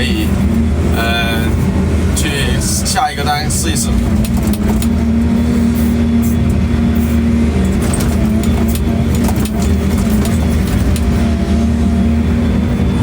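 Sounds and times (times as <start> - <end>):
excavator diesel engine running: 0.0 - 13.0
faint clicks and knocks: 7.6 - 11.2.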